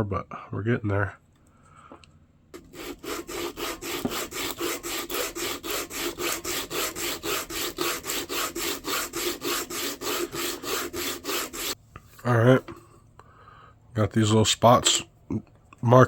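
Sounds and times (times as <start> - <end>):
sandpaper sanding wood by hand: 2.6 - 11.8.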